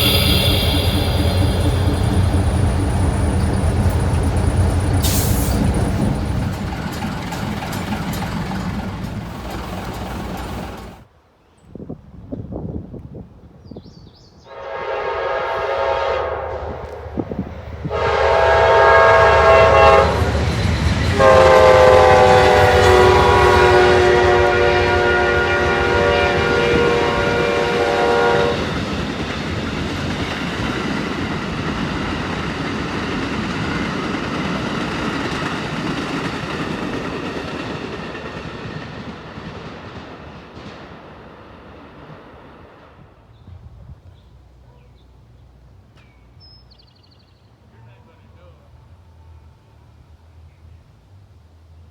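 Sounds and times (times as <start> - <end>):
locomotive air horn blasts: 0.0 - 5.7, 14.5 - 28.9
train rumbling on rails: 0.0 - 11.1, 14.6 - 46.4.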